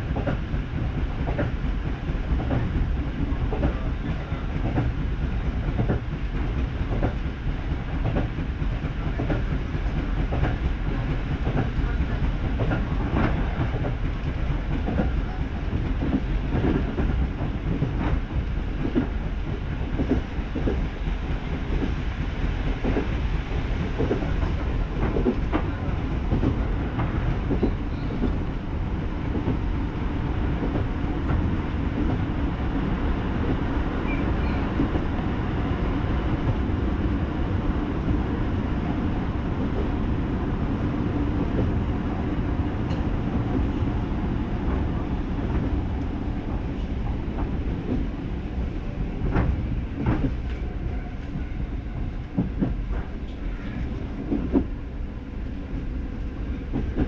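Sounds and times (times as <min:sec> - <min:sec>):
wheels clickety-clack over rail joints: 0:00.0 - 0:54.8, 0:55.4 - 0:57.0
train rumble: 0:00.0 - 0:57.0.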